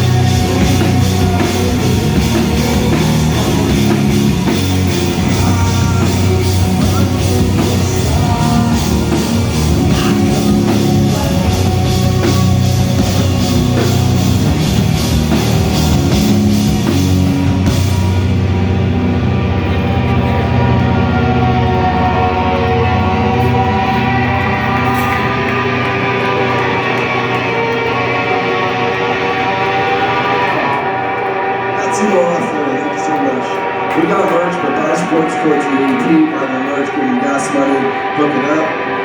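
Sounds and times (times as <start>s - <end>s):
drum kit beat: 0.0s - 30.7s
bass guitar: 0.0s - 39.0s
distorted electric guitars: 0.0s - 39.0s.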